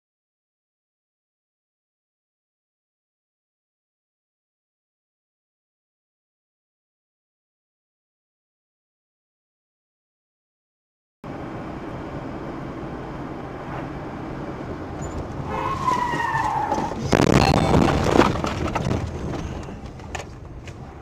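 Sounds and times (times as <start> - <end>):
car engine and road noise: 11.2 - 21.0
tyres squealing: 15.0 - 19.8
rough skidding or scraping noise: 15.0 - 21.0.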